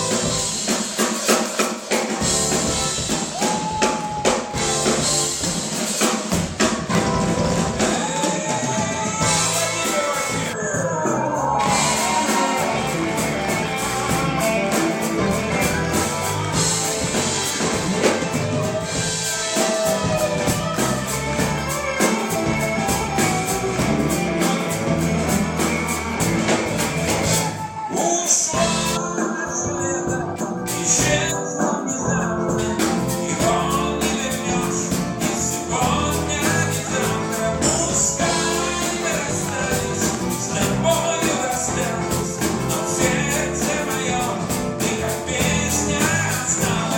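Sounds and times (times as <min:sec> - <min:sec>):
live band playing: 0:00.0 - 0:46.9
steady drum beat: 0:00.0 - 0:46.9.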